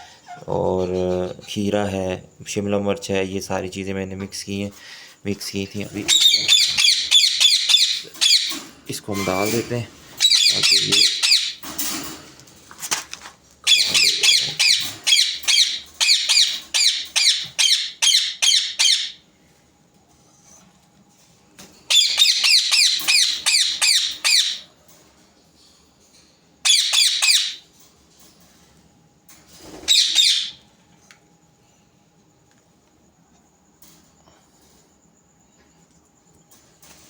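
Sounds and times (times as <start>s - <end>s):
parakeets squawking: 5.8s - 11.6s, 13.7s - 19.2s, 21.9s - 24.7s, 26.6s - 27.6s, 29.8s - 30.6s.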